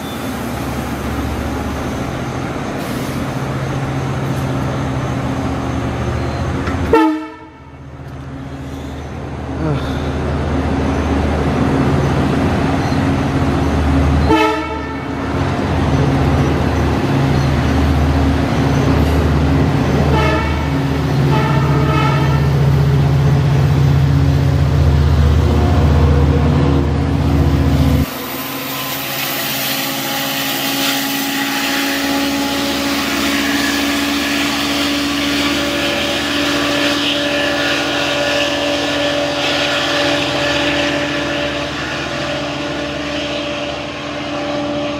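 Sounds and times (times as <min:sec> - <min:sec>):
diesel train running: 0:00.0 - 0:44.9
train horn: 0:06.9 - 0:07.8, 0:14.2 - 0:15.2, 0:20.1 - 0:22.6, 0:29.4 - 0:44.9.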